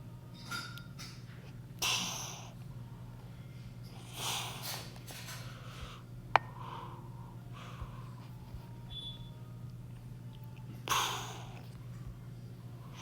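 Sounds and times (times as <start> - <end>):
low steady hum: 0.0 - 13.0
noisy breaths close to microphone: 1.4 - 8.9, 10.6 - 13.0.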